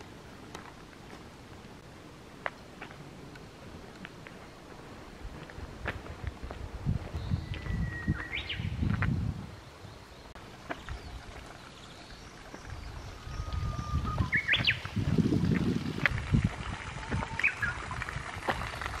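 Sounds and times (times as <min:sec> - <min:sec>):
bird singing whistles: 0:07.2 - 0:08.8, 0:11.9 - 0:14.8, 0:17.3 - 0:17.8.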